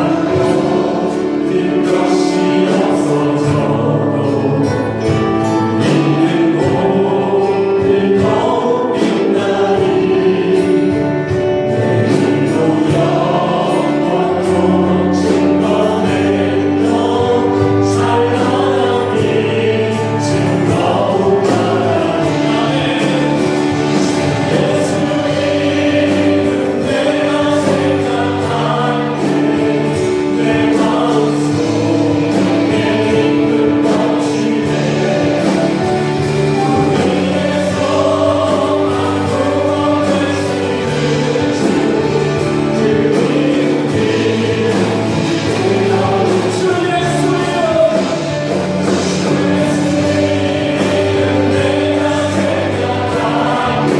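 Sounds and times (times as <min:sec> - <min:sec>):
group singing worship song: 0:00.0 - 0:53.9
music accompaniment: 0:00.0 - 0:53.9.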